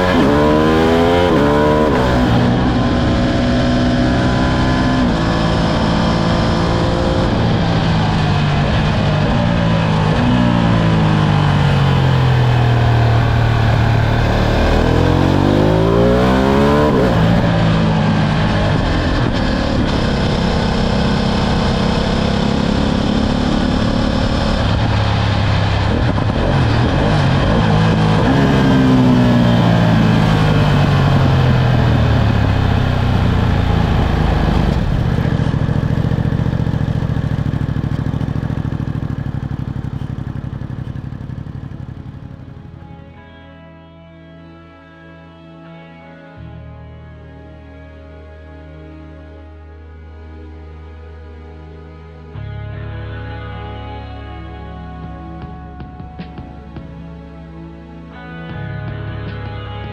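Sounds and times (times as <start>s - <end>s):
motorcycle engine under way: 0.0s - 43.2s.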